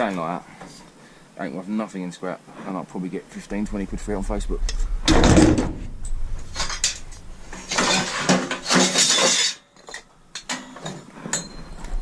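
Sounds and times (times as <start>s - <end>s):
metal scrap clattering: 6.4s - 11.6s.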